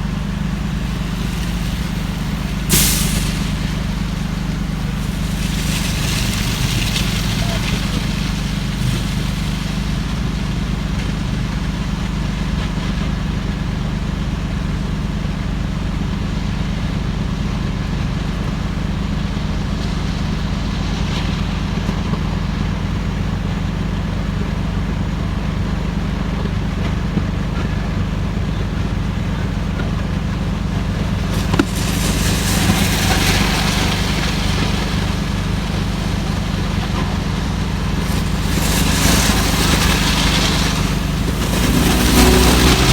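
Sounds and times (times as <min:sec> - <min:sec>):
rushing hiss: 0:00.0 - 0:12.8, 0:30.6 - 0:42.9
vehicle engine idling: 0:00.0 - 0:42.9.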